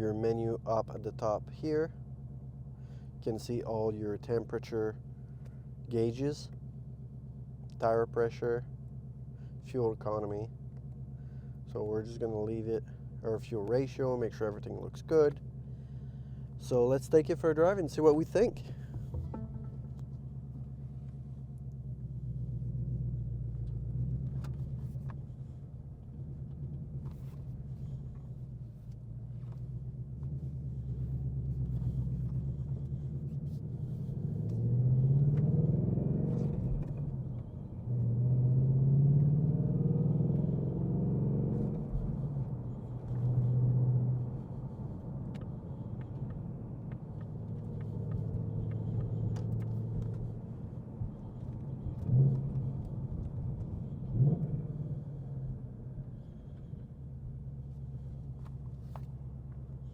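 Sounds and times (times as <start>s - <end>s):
car engine rumble: 0.0s - 59.9s
car engine accelerating: 15.4s - 59.9s.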